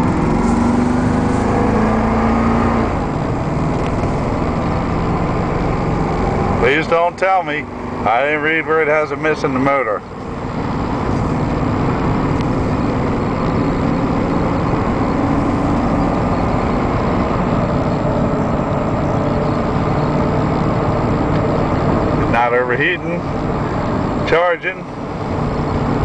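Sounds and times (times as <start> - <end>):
truck engine running: 0.0 - 26.0.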